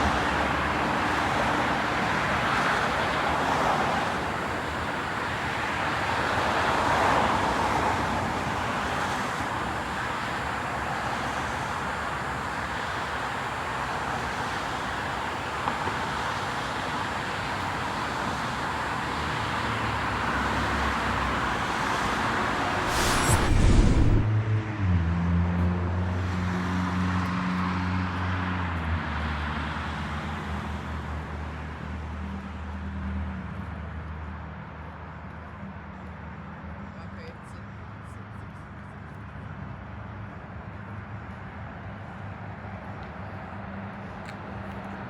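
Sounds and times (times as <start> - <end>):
rushing vehicle noise: 0.0 - 33.0.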